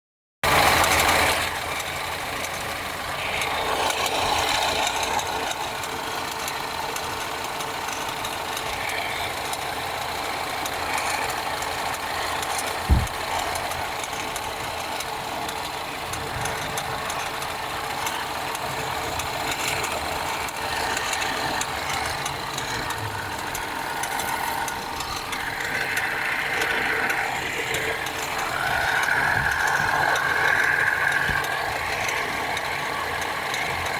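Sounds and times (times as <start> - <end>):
car engine idling: 0.4 - 33.9
belt tensioner ticking: 0.5 - 33.9
thump: 12.9 - 13.2.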